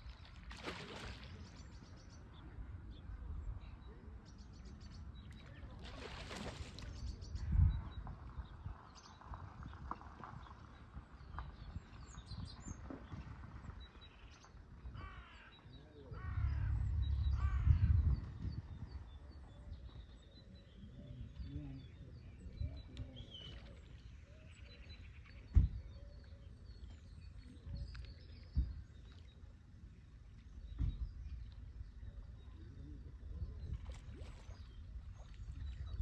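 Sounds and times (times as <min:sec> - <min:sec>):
harsh falling bird calls: 0:15.0 - 0:18.6
low rumble: 0:16.1 - 0:20.0.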